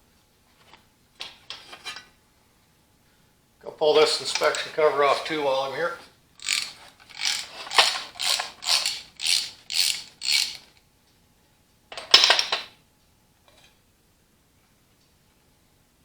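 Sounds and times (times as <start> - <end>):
ratchet wrench cranking: 6.4 - 10.8.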